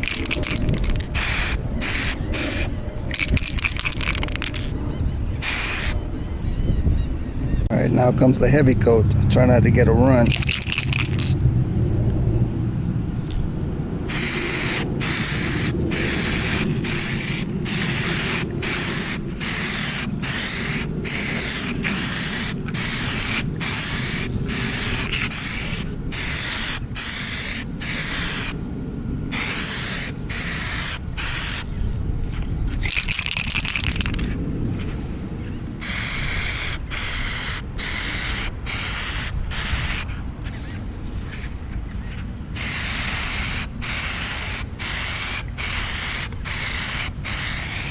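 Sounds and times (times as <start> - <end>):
aerosol can spraying: 0.0 - 4.7, 5.4 - 6.0, 10.3 - 11.4, 14.1 - 28.6, 29.3 - 31.7, 32.8 - 34.3, 35.8 - 40.1, 42.6 - 47.9.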